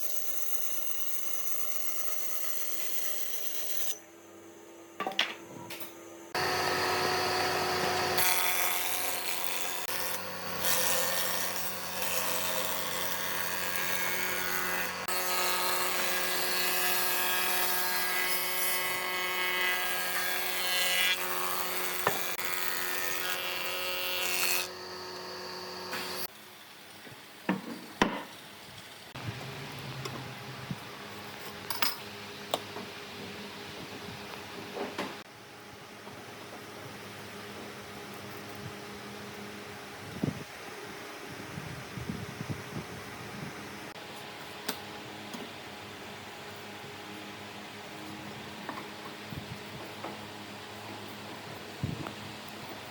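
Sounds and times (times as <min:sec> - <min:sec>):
power tool rasping wood: 0:06.4 - 0:26.3.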